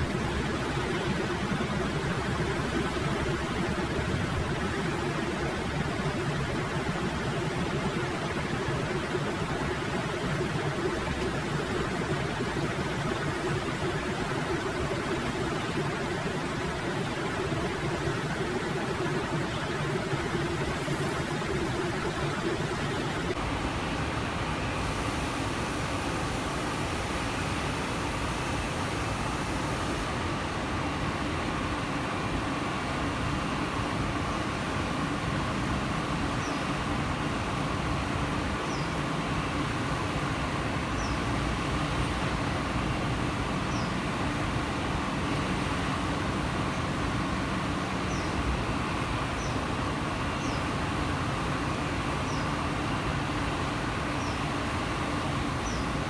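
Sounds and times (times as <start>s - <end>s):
low hum: 0.0s - 23.4s.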